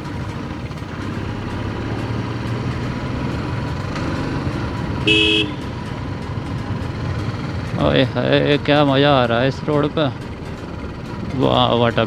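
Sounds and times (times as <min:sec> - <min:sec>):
motorcycle engine running: 0:00.0 - 0:12.0
road noise: 0:00.0 - 0:12.0
short horn beep: 0:05.0 - 0:05.7.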